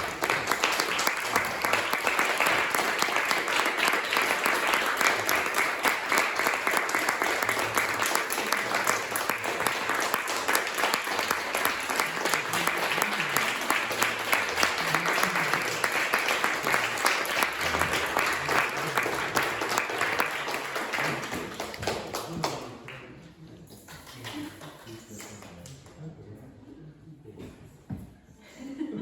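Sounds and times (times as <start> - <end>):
audience applauding: 0.0 - 23.1.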